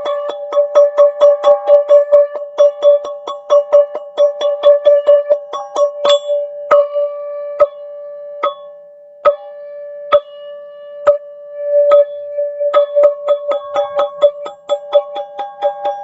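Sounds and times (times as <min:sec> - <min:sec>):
chime ringing sustained tone: 0:05.0 - 0:16.0.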